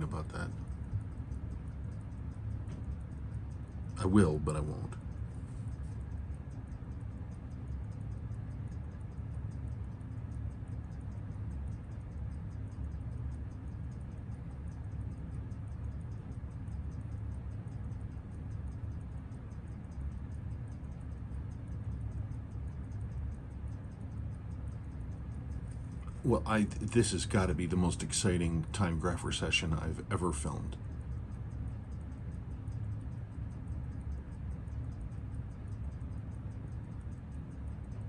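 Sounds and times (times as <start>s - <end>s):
steady low hum: 0.0s - 38.0s
watch movement ticking: 0.0s - 38.0s.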